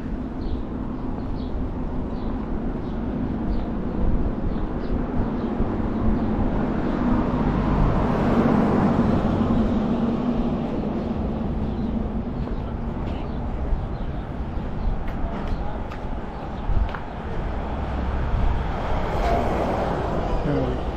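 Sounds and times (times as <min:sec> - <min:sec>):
wind rumble on microphone: 0:00.0 - 0:20.9
vehicle driving past: 0:17.4 - 0:20.9.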